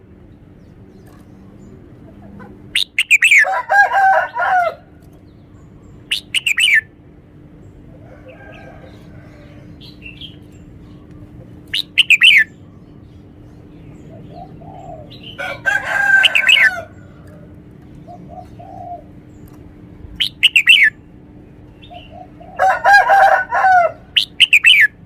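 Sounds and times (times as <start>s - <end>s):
bird song bursts: 2.7s - 3.4s, 5.2s - 6.9s, 11.7s - 15.4s, 20.2s - 21.0s, 24.1s - 25.0s
faint bird calls: 7.8s - 19.6s, 20.2s - 21.0s, 21.7s - 25.0s.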